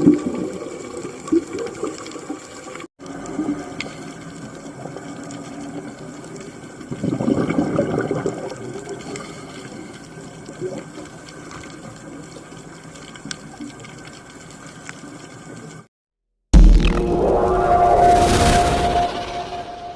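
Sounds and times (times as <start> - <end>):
muffled underwater water noise: 0.0 - 15.9.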